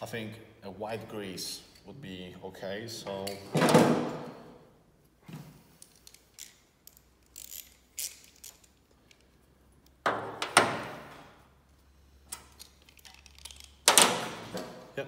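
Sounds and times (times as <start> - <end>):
metal parts clicking and knocking: 5.7 - 10.6, 12.3 - 14.2.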